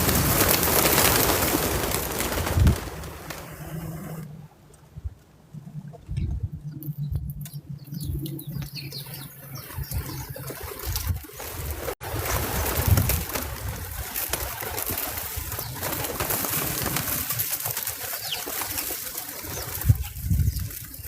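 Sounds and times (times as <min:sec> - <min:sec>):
rustling: 0:00.0 - 0:05.3, 0:09.0 - 0:21.0
doves flapping wings: 0:00.0 - 0:21.0.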